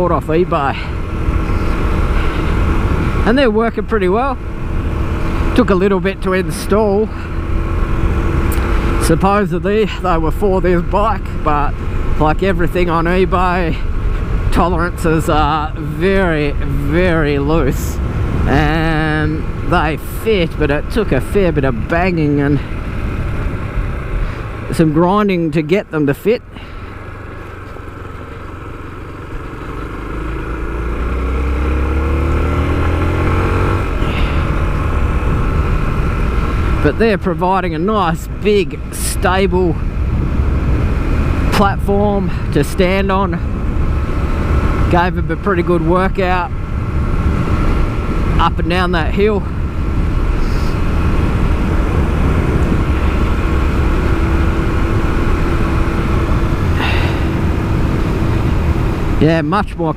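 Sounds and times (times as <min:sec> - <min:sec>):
motorcycle engine accelerating: 0:00.0 - 0:59.9
wind rumble on microphone: 0:31.4 - 0:37.2, 0:37.9 - 0:59.9.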